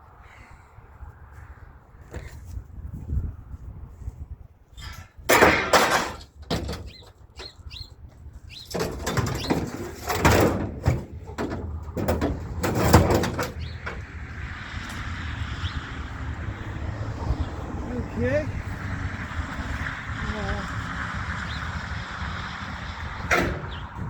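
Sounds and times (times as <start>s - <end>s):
scrap metal clattering and scraping: 4.8s - 7.6s, 8.6s - 15.1s.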